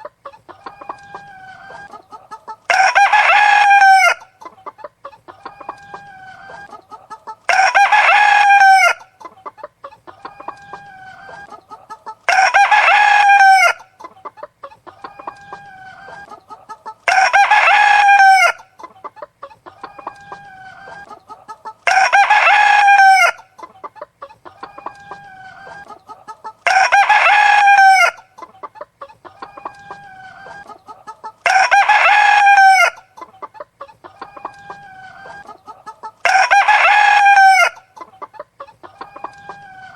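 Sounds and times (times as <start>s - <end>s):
chicken clucking: 0.0s - 39.9s
rooster crowing: 0.6s - 4.3s, 7.5s - 9.1s, 12.3s - 13.9s, 17.1s - 18.7s, 21.8s - 23.5s, 26.6s - 28.3s, 31.4s - 33.1s, 34.1s - 37.9s, 38.9s - 39.9s.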